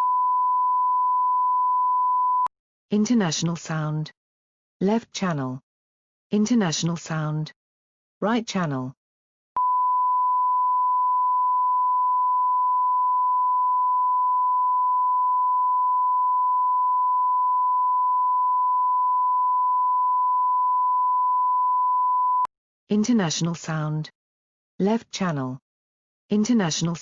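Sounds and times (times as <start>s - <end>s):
steady sine-wave tone: 0.0s - 2.5s, 9.6s - 22.5s.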